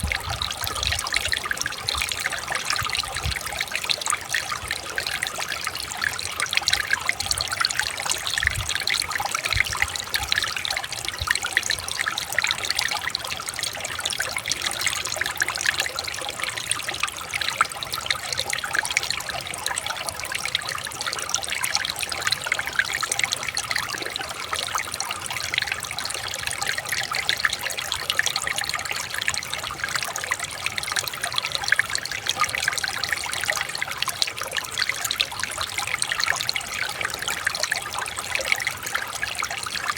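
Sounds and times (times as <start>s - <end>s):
water babbling over stones: 0.0s - 39.9s.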